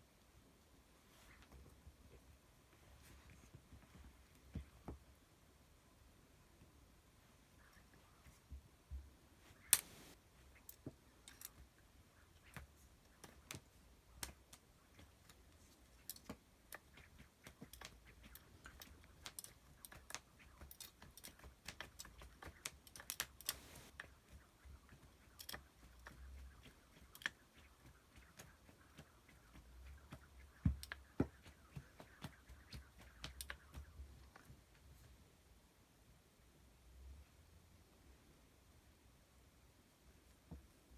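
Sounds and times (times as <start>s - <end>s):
light clicks and taps: 7.6s - 35.2s.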